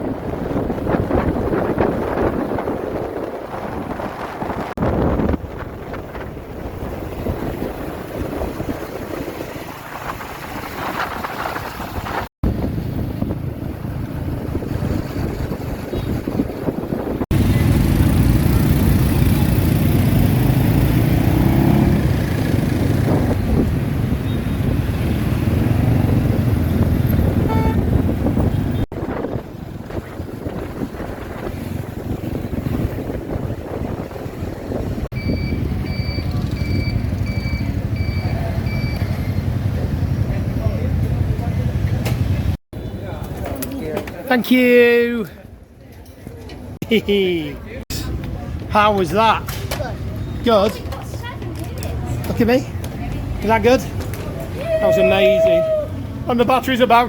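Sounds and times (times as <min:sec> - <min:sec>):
wind buffeting microphone: 0:00.0 - 0:39.0
motorbike engine rumble: 0:00.0 - 0:43.6
city traffic: 0:00.0 - 0:57.0
brief tone: 0:35.2 - 0:39.2.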